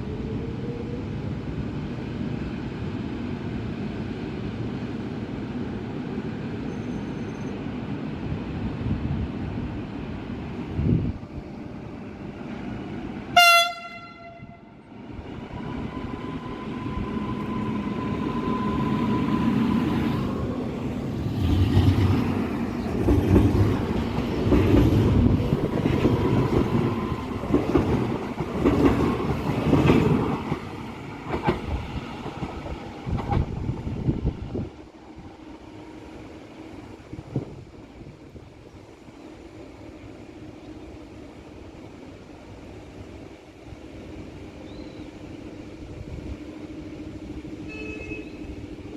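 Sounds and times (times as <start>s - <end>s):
train rumble: 0.0s - 48.9s
train horn blast: 13.3s - 14.8s, 47.6s - 48.6s
train wheel clatter: 21.2s - 34.1s.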